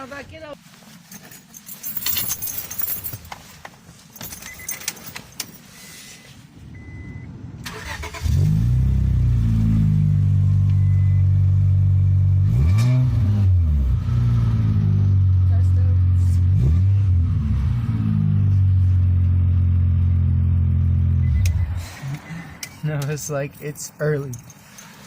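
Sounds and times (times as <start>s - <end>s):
engine revving: 7.6s - 10.9s, 11.5s - 22.3s.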